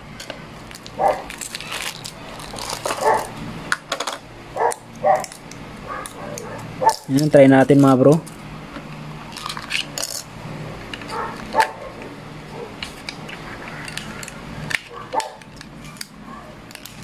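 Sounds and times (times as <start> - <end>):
dog barking: 1.0 - 1.3, 3.0 - 3.3, 4.6 - 7.1, 11.1 - 12.8, 14.9 - 15.4.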